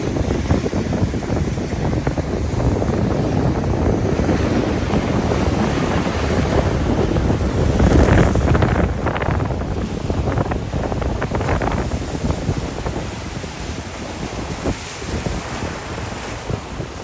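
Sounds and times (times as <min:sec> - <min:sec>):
strong wind buffeting microphone: 0:00.0 - 0:17.0
surf washing on beach: 0:00.0 - 0:17.0.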